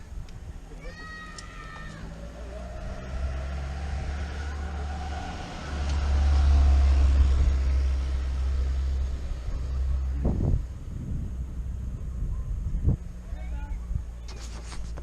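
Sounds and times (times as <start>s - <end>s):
wind rumble on microphone: 6.6s - 15.0s.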